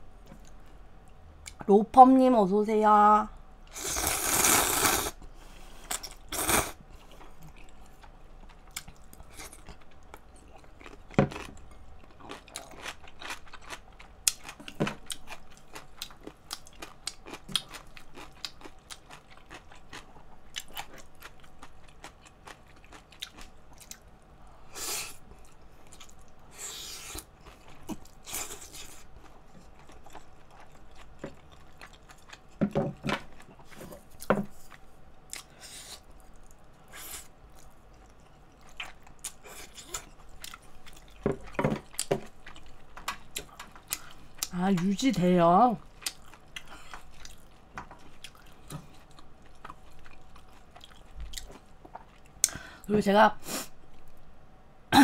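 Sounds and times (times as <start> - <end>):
slurping noodles: 3.7 - 5.2, 6.3 - 6.8
wet chewing and mouth clicks: 5.9 - 24.1, 33.3 - 44.9, 45.8 - 52.6.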